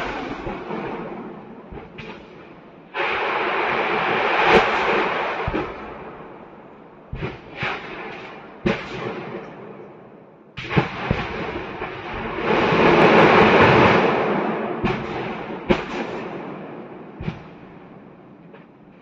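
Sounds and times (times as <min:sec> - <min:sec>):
rushing blast: 0:00.0 - 0:09.3, 0:10.6 - 0:18.1
sharp explosions: 0:00.0 - 0:09.9, 0:10.6 - 0:18.4.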